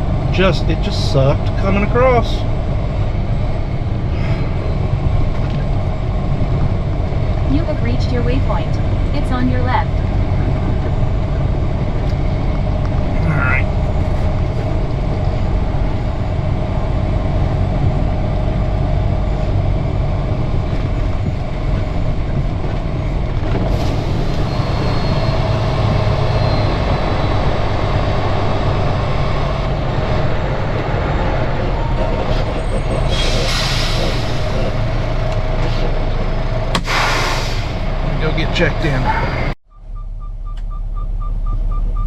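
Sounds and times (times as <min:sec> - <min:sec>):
diesel truck engine running: 0:00.0 - 0:42.0
air brake hiss: 0:33.1 - 0:34.5, 0:36.8 - 0:37.9.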